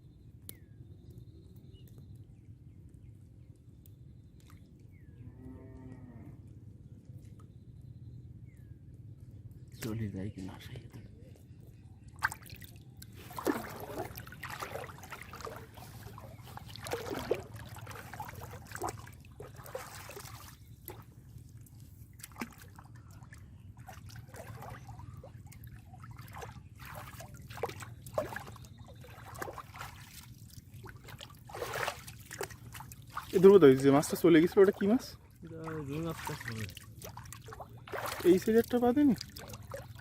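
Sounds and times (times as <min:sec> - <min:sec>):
pond water splashing and dripping: 0:03.8 - 0:05.0, 0:12.0 - 0:40.0.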